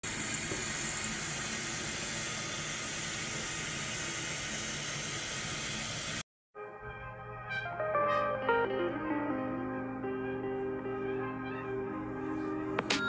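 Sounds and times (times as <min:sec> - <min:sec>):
coffee maker hissing: 0:00.0 - 0:06.2.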